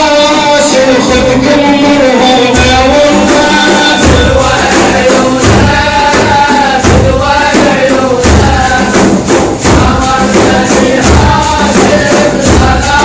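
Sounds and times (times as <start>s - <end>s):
chanted singing: 0.0s - 13.0s
deep drum thumps: 0.9s - 13.0s
tambourine jingles: 2.5s - 13.0s.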